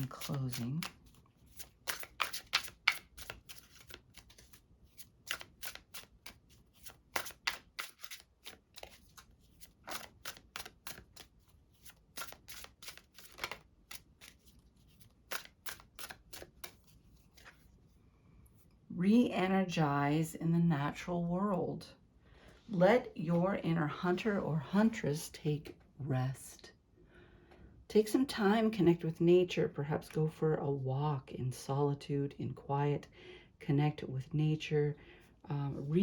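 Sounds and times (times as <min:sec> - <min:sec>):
cards being shuffled: 0:00.0 - 0:17.7.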